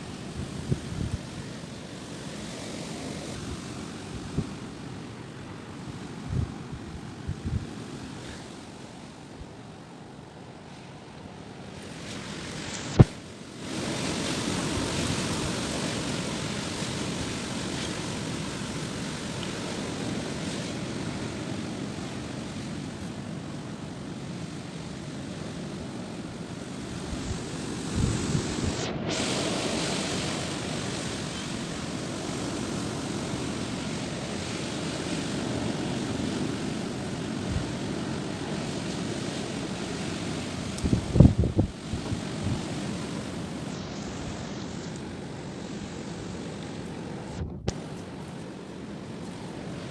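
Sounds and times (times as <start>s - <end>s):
strong wind gusting: 0.0s - 9.7s, 25.7s - 49.9s
wind buffeting microphone: 0.0s - 9.7s, 12.2s - 49.9s.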